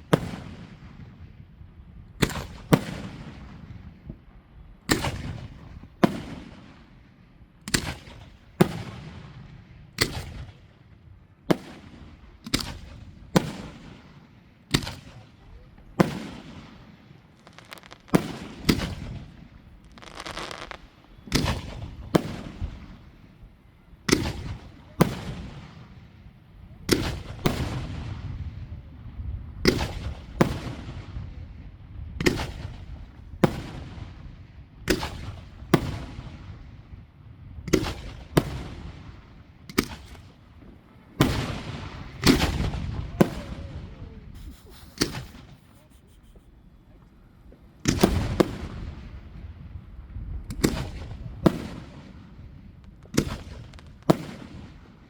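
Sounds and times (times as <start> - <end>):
fireworks bursting with echoing rumble: 0.0 - 4.2, 4.8 - 7.0, 11.5 - 15.2, 15.8 - 55.0
fireworks crackle: 17.3 - 23.0, 42.0 - 47.1, 52.8 - 54.8.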